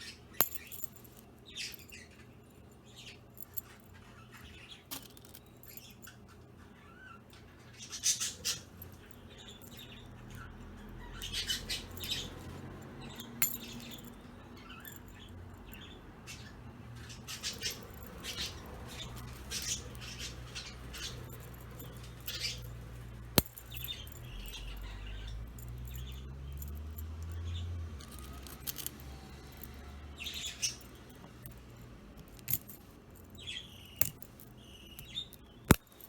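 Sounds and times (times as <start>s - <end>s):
metal chain toy jingling: 0.4s - 2.1s, 2.9s - 4.0s, 4.9s - 6.2s, 8.0s - 16.4s, 17.1s - 36.0s.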